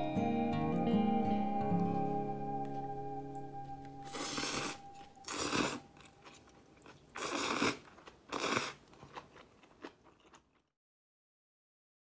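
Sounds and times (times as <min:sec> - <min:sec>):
crisp food crunching: 0:04.1 - 0:10.7.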